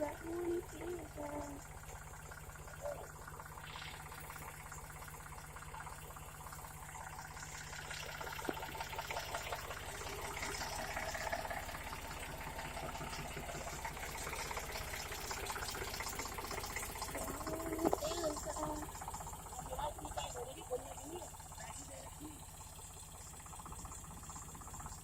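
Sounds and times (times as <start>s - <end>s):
tractor engine running: 0.0s - 25.0s
hiss: 3.6s - 5.1s.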